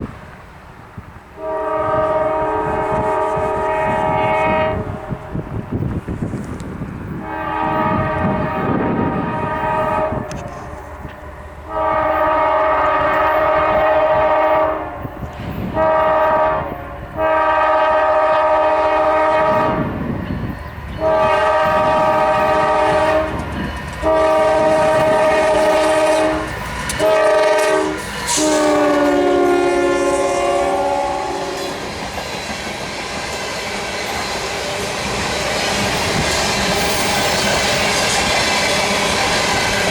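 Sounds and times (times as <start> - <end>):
train rumble and clatter: 0.0 - 39.9
locomotive air horn blasts: 1.4 - 5.7, 7.2 - 20.0, 21.0 - 31.9.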